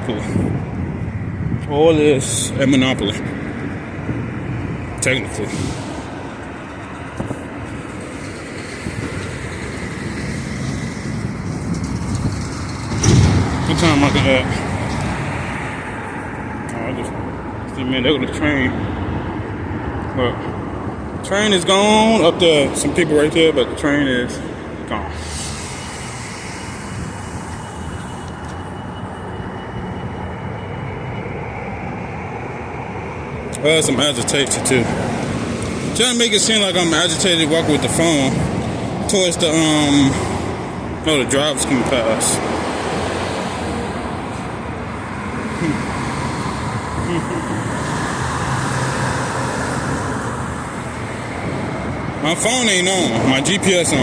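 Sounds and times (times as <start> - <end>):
passing vehicles rumbling: 0.0 - 54.0
thin high whine: 25.0 - 38.3.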